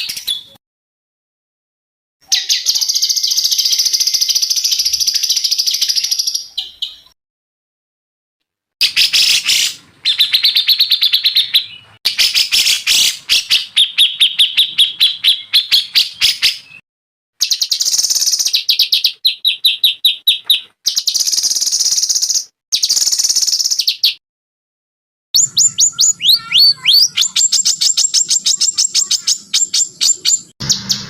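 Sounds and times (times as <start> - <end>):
songbirds trilling: 8.8 - 16.8, 25.4 - 31.0.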